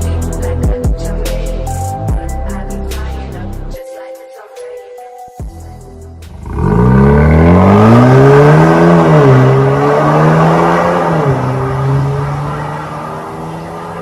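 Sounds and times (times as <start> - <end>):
car exhaust accelerating: 6.2 - 14.0.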